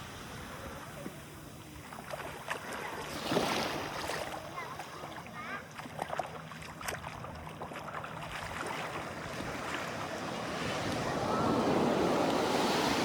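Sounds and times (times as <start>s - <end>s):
sea wave washing on shore: 7.8s - 13.0s.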